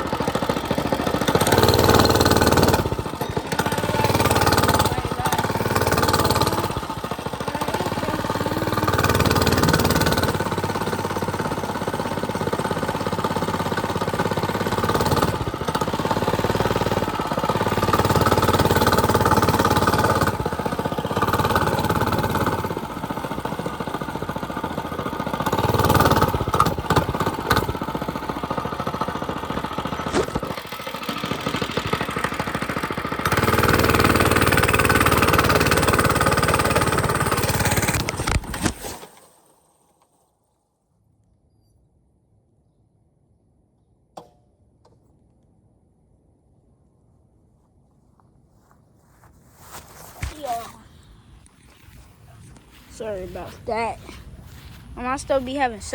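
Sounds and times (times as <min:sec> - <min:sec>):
small bike engine running: 0:00.0 - 0:40.2, 0:49.2 - 0:55.9.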